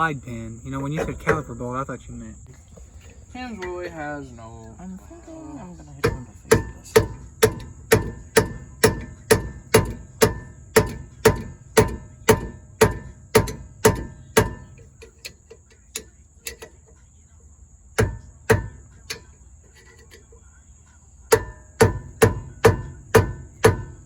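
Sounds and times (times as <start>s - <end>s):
hammer blows on metal: 6.0s - 16.8s, 18.0s - 20.3s, 21.3s - 24.0s.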